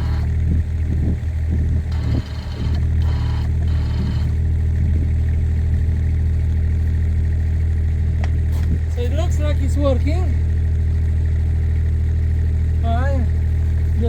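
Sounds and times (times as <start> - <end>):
hydraulic whine: 0.0 - 5.2
excavator diesel engine running: 0.0 - 14.0.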